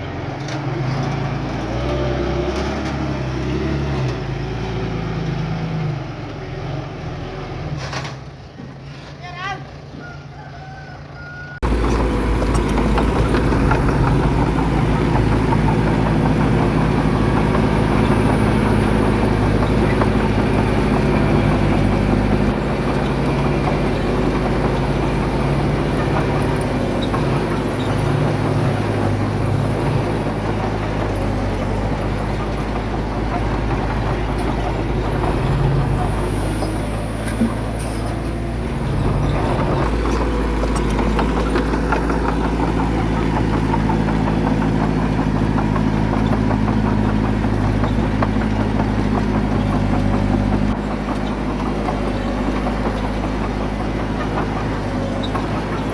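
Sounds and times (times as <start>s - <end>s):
heavy diesel engine running: 11.6s - 55.9s.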